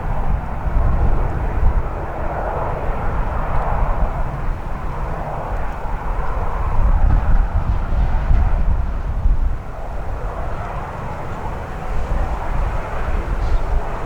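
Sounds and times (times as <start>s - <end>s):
jet engines running: 0.0s - 14.0s
wind buffeting microphone: 0.0s - 14.0s.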